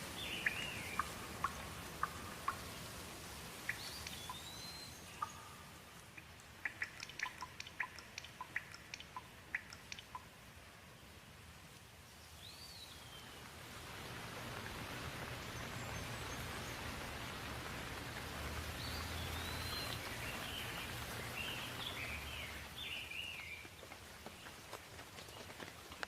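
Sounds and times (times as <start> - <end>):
bird chirping: 0.0 - 2.9, 3.6 - 10.3, 12.1 - 13.5, 14.9 - 17.5, 18.2 - 25.6
rain falling: 0.0 - 26.0.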